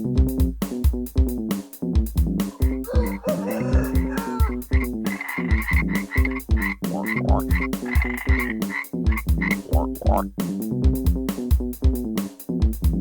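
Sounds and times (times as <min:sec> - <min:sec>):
music with beat and bass: 0:00.0 - 0:13.0
frog croaking: 0:02.5 - 0:10.3.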